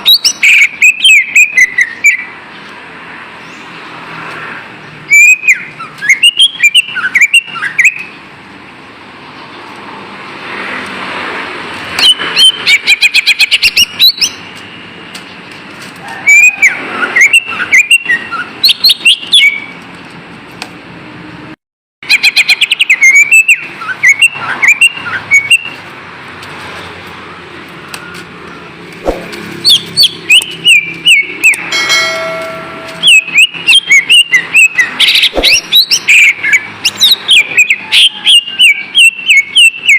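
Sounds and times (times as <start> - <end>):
bird singing whistled notes: 0.0 - 2.3, 5.1 - 8.2, 12.0 - 14.5, 16.3 - 19.7, 22.1 - 25.8, 29.6 - 39.9
buzzy bird note: 29.0 - 34.0.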